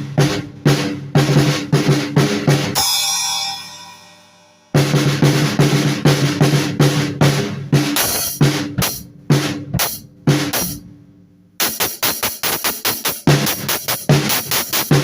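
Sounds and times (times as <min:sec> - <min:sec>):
drum kit hits: 0:04.8 - 0:10.8, 0:11.6 - 0:15.0.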